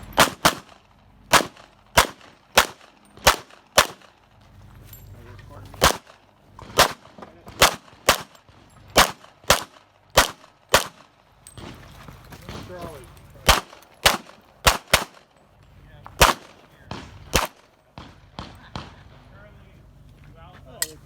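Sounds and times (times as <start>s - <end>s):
pistol shots: 0.1s - 4.2s, 5.8s - 11.8s, 13.4s - 15.4s, 16.2s - 19.2s.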